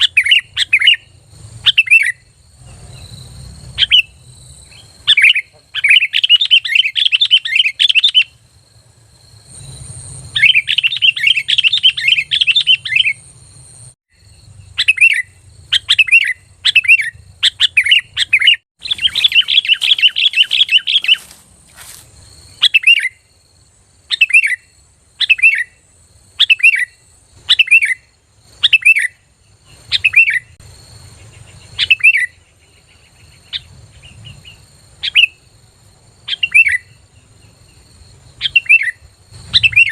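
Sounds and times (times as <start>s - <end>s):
bulbul chattering: 0.0s - 8.5s, 9.4s - 21.4s, 36.2s - 39.9s
falling whistled bird notes: 14.8s - 21.3s, 38.4s - 39.9s.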